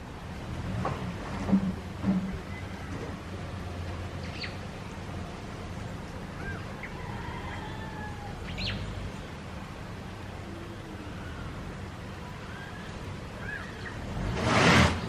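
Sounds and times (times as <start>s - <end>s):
low background rumble: 0.0s - 15.0s
bird chirps and calls: 4.2s - 4.6s, 8.4s - 8.9s, 12.4s - 14.0s.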